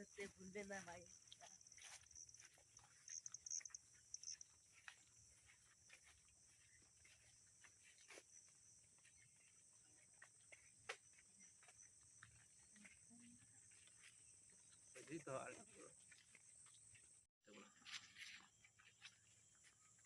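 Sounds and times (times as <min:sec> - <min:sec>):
high-pitched chirping: 0:02.8 - 0:07.2.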